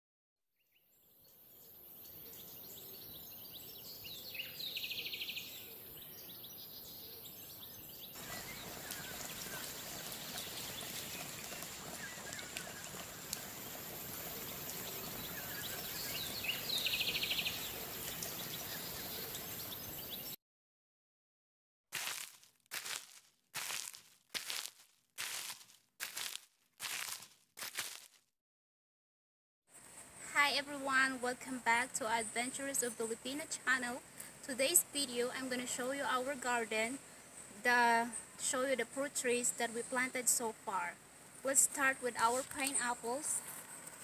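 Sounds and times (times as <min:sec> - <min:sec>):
trilled bird call: 0:02.1 - 0:20.4
steady hiss: 0:08.2 - 0:20.2.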